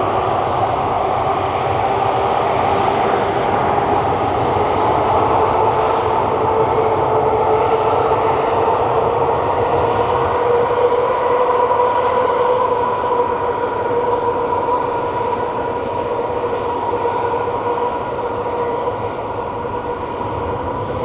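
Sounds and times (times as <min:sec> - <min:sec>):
jet engines whining roar: 0:00.0 - 0:10.0.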